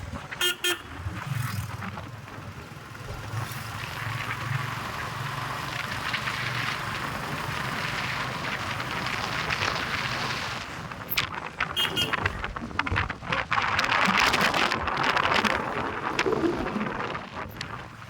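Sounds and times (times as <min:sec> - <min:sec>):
wind and road rush: 0:00.0 - 0:18.0
horn beeps: 0:00.4 - 0:00.9, 0:11.8 - 0:12.4.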